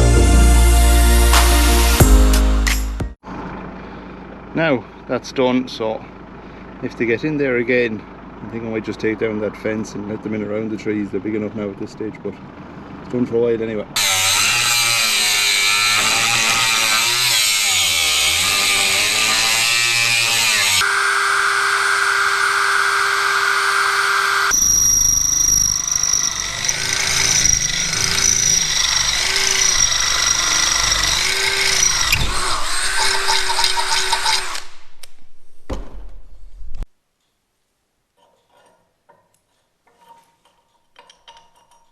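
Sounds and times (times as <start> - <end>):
power tool running: 14.0 - 35.0.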